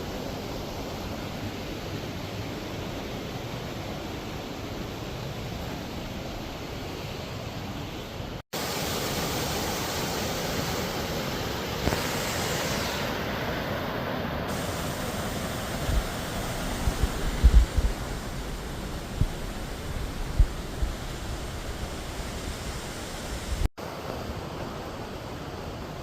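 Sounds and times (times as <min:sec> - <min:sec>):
waterfall roaring: 0:00.0 - 0:26.0
low thumps on microphone: 0:16.8 - 0:18.2.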